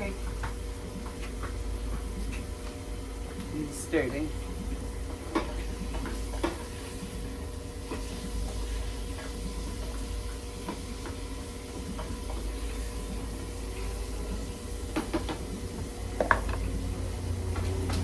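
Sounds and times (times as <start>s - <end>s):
steady hum: 11.3s - 18.0s.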